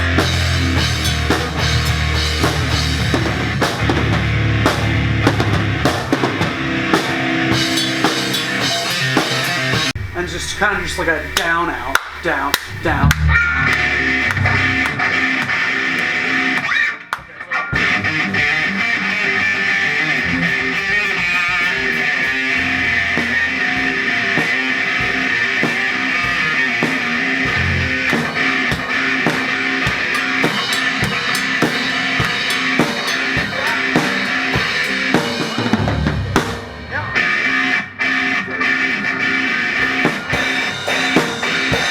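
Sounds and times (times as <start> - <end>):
drum kit: 0.0 - 18.7, 20.0 - 37.8, 39.6 - 41.9
electric guitar: 0.0 - 41.9.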